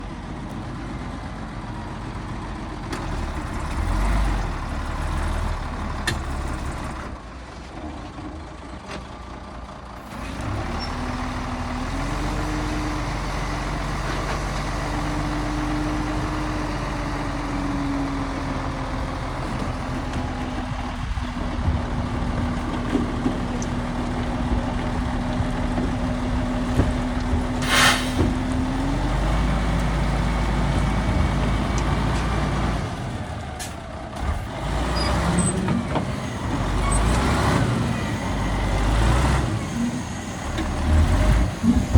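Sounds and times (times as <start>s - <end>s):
diesel machinery rumbling: 0.0s - 41.9s
hiss burst: 27.6s - 28.2s.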